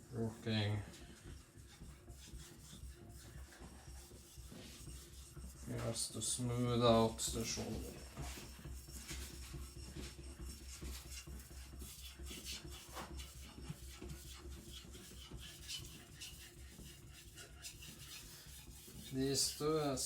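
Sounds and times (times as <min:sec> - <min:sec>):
steady low hum: 0:00.0 - 0:20.0
blade scraping on water stone: 0:14.7 - 0:20.0.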